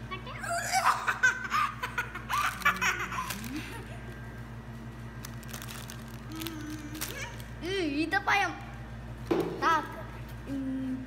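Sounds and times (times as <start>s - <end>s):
steady low hum: 0.0s - 11.0s
people and children laughing: 0.7s - 4.1s.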